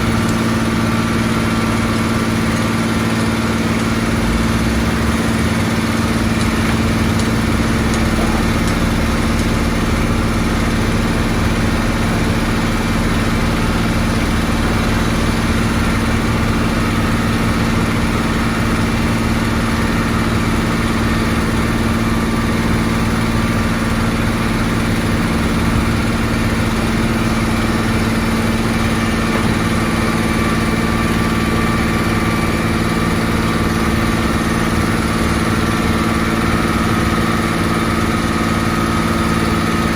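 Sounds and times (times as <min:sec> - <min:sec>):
heavy machinery engine running: 0:00.0 - 0:39.9.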